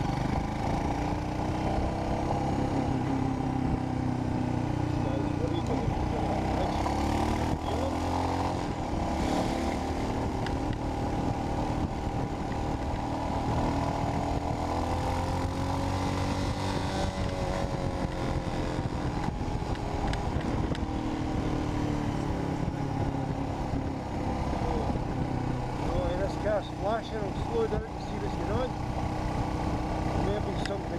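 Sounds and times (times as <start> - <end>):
motorcycle engine running: 0.0 - 30.9
wind rumble on microphone: 7.3 - 30.9.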